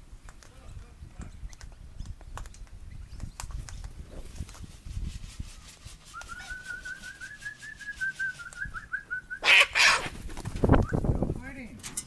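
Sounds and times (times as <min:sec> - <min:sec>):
cockatoo screeching: 0:09.4 - 0:10.2.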